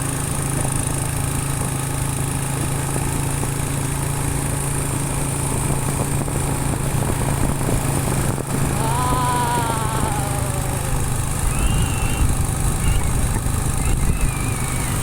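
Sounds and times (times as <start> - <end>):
motorcycle engine running: 0.0 - 15.0
road noise: 0.0 - 15.0
wind noise: 5.6 - 15.0.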